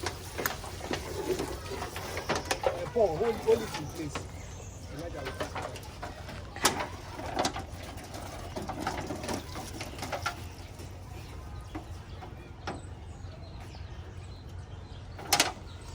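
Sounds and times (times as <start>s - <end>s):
handling knocks and rustles: 0.0s - 13.8s.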